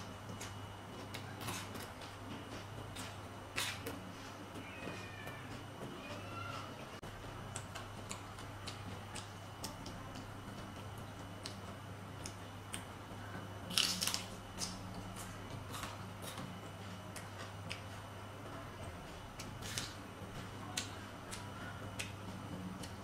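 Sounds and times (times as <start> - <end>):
steady low hum: 0.0 - 23.0
crunching raw vegetables: 13.6 - 17.9.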